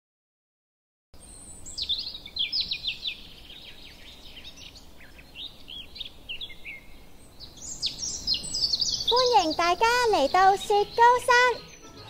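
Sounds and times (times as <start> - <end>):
background hiss: 1.2 - 12.0
birds chirping: 1.2 - 12.0.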